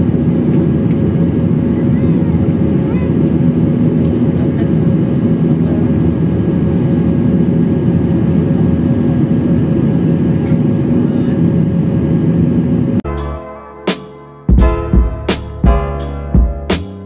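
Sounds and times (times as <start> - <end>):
jet engine cabin drone: 0.0 - 16.4
music with a beat: 13.1 - 17.0.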